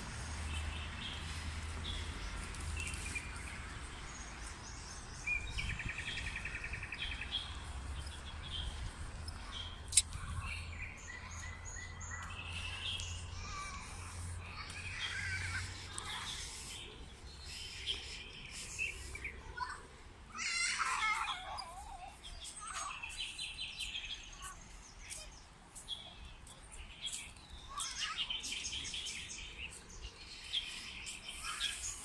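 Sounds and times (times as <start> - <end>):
birds chirping and trilling: 0.1 - 32.0.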